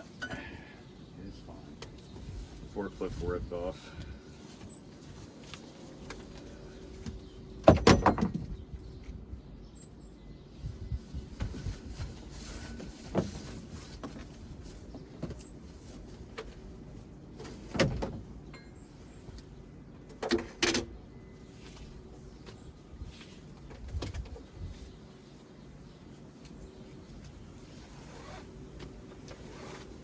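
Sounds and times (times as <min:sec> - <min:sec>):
birds chirping faintly: 0:00.0 - 0:30.0.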